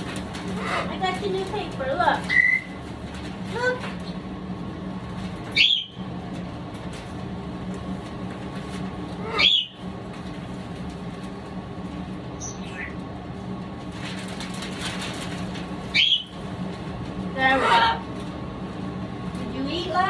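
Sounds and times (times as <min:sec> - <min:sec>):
steady low hum: 0:00.0 - 0:20.0
parrot calling: 0:00.5 - 0:01.1, 0:02.2 - 0:02.8, 0:05.6 - 0:06.0, 0:09.2 - 0:09.8, 0:12.4 - 0:13.0, 0:15.9 - 0:16.4, 0:17.4 - 0:18.1.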